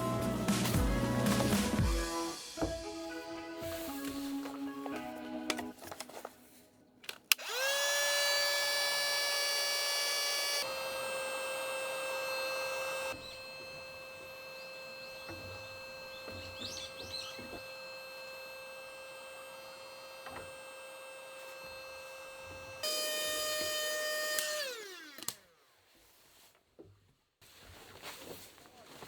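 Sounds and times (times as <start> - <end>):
small electric motor whining: 7.3 - 25.7.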